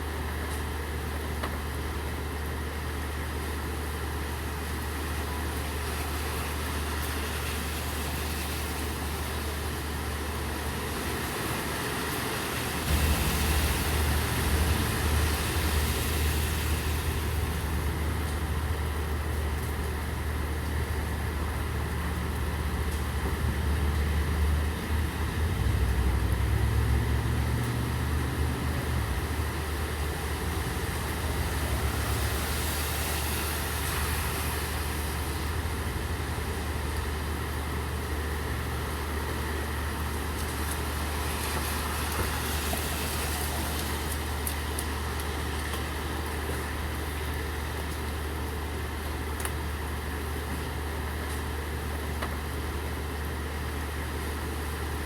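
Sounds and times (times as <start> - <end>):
steady rain: 0.0 - 55.0
vehicle engine rumbling: 10.1 - 55.0.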